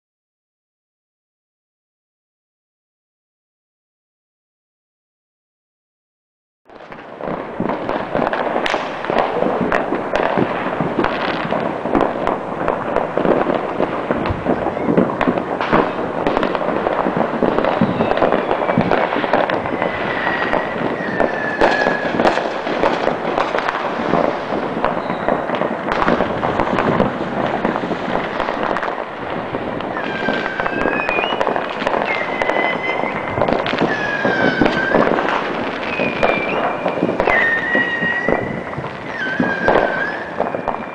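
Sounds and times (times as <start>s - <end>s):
fireworks and firecrackers popping: 6.7s - 40.9s
wavering whistling tones: 17.7s - 22.2s, 30.0s - 35.1s, 35.8s - 40.9s.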